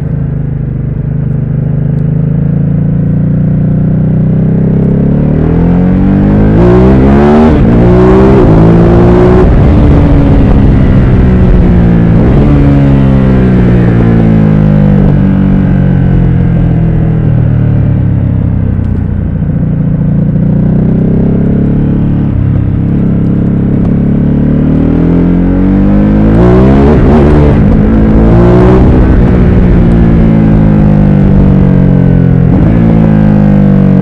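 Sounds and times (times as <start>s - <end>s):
motorcycle engine revving: 0.0s - 34.0s
wind rushing over microphone: 6.3s - 16.2s, 24.8s - 33.4s.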